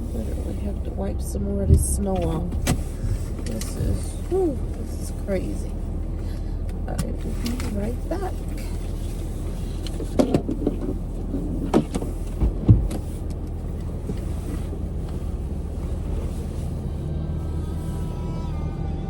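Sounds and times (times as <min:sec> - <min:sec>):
car engine idling: 0:00.0 - 0:19.0
knocks and clunks: 0:00.7 - 0:04.9, 0:09.8 - 0:14.3.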